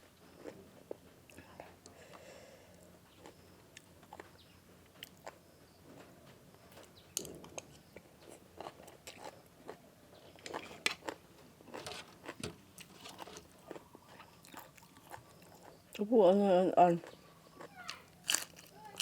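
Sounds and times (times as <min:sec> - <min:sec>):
person chewing crunchy food: 0:02.8 - 0:05.5, 0:07.2 - 0:16.0, 0:17.0 - 0:19.0.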